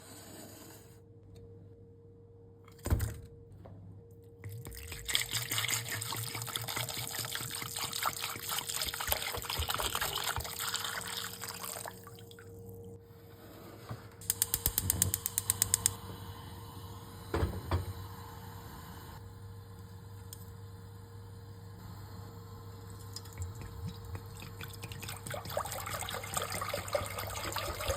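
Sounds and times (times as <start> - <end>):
water filling a container: 4.4 - 12.6, 23.1 - 27.9.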